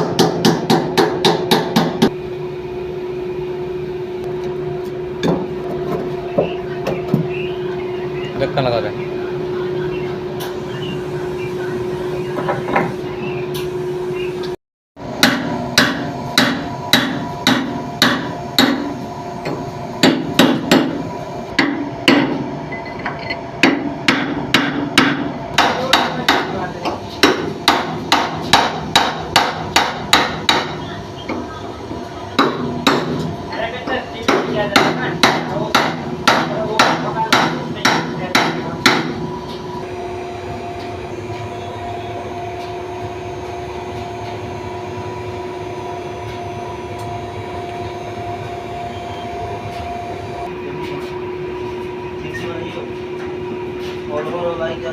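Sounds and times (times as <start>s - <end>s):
steady machine hum: 0.0s - 54.9s.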